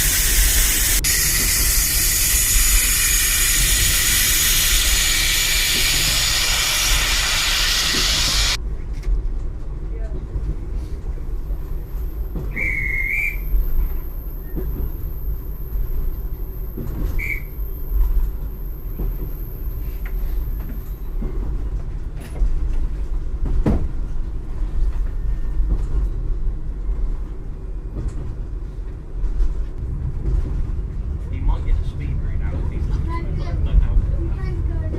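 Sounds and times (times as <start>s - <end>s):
short high squeaks: 0.0s - 8.5s
train knocks: 0.0s - 8.6s, 12.0s - 24.3s
train rumbling: 0.0s - 34.9s.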